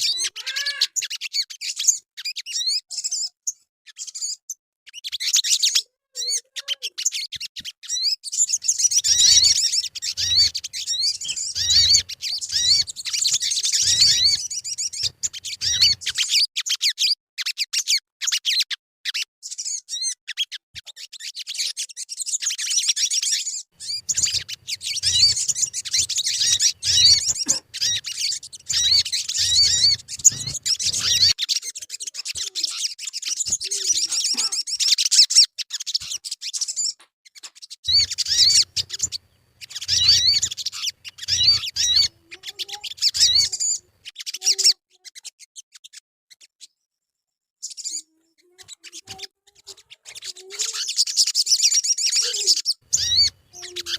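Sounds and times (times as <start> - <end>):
bird chirping and trilling: 0.0 - 46.9, 47.6 - 53.9.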